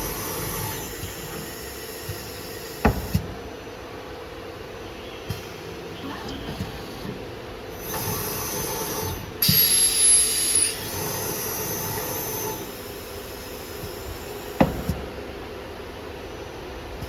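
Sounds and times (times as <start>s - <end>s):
router hissing burst with whine: 7.8s - 14.4s
cnc router machine noise: 9.4s - 13.0s.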